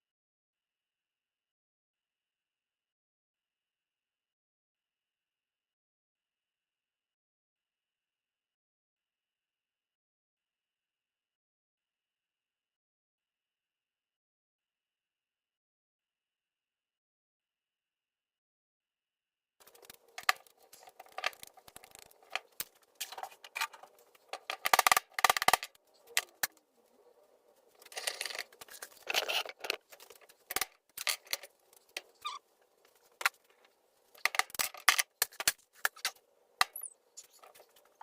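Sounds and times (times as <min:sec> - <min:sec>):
hand tools and parts clinking: 0:19.6 - 0:26.6, 0:27.7 - 0:38.0.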